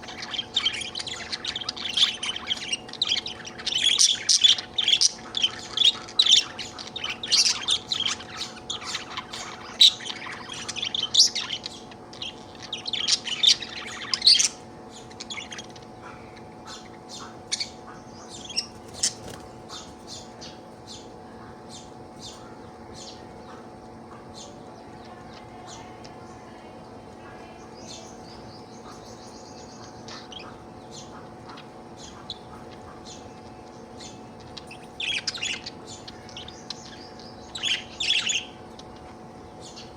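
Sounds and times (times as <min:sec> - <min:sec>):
budgerigar chirping and warbling: 0:00.0 - 0:26.0, 0:27.8 - 0:39.9.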